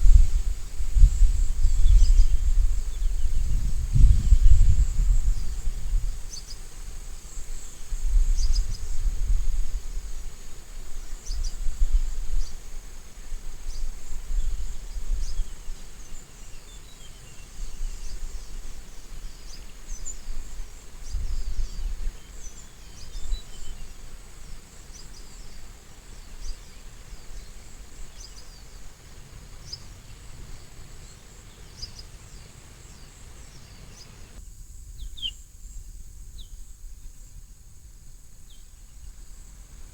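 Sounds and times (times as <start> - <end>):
wind rumble on microphone: 0.0 - 39.9
bird chirps: 29.6 - 34.4.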